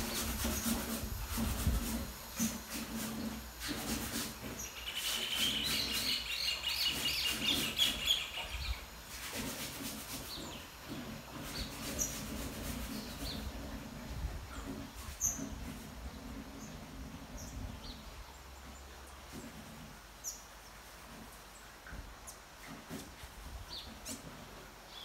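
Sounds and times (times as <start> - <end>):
birds chirping: 4.4 - 8.9.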